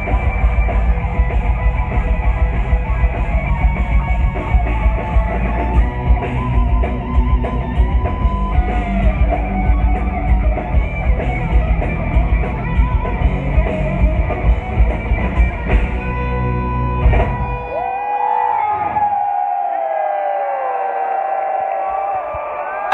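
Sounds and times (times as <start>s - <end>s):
live heavy metal band: 0.0s - 17.8s.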